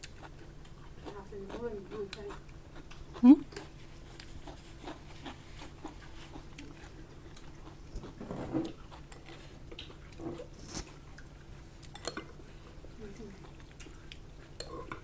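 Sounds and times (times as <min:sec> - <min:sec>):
chewing and wet mouth clicks: 0:13.4 - 0:15.0.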